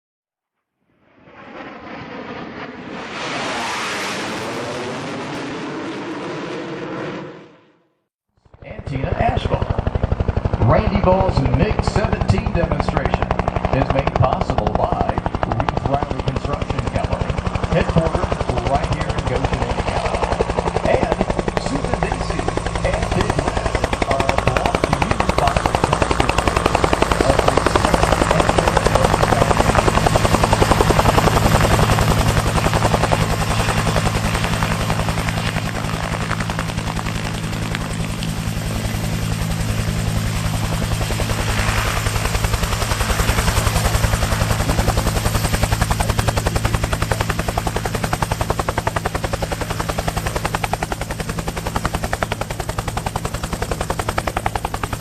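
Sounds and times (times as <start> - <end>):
rc helicopter rotor and motor: 8.4 - 55.0.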